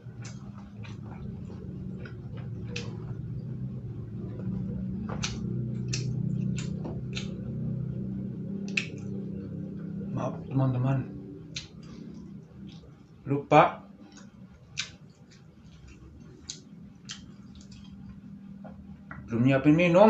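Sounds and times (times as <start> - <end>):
person chewing food: 0.0 - 10.1, 11.2 - 13.2, 14.0 - 19.0
steady low hum: 0.0 - 20.0
wet mouth smacking clicks: 2.7 - 3.0, 5.2 - 7.4, 8.7 - 9.1, 11.5 - 11.9, 14.2 - 15.0, 16.4 - 17.8.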